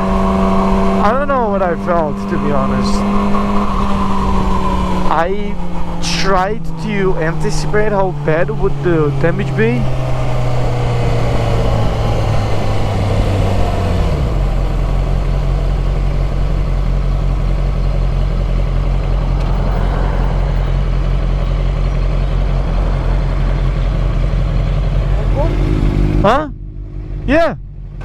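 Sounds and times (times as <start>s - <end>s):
motorcycle engine running: 0.0s - 28.0s
road noise: 0.0s - 28.0s.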